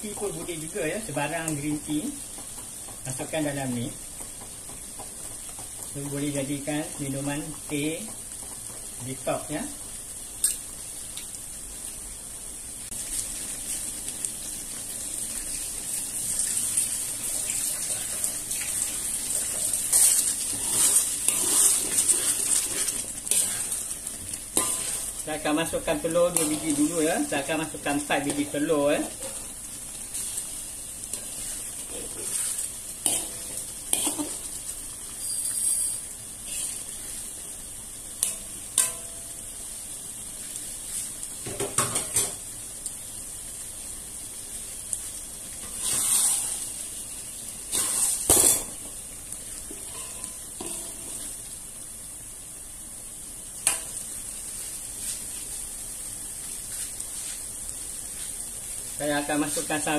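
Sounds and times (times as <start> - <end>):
sauce sizzling in a wok: 0.0 - 59.9
spatula scraping and knocking pan: 19.4 - 25.2, 31.1 - 34.5.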